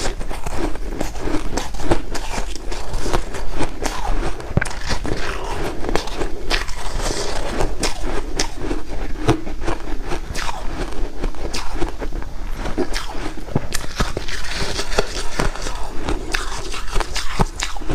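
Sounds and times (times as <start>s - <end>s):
ice being crunched and chewed: 0.0s - 17.9s.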